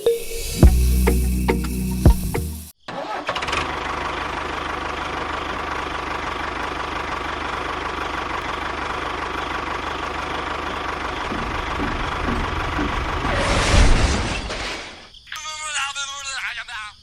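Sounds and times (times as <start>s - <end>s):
small engine running: 3.0s - 13.6s.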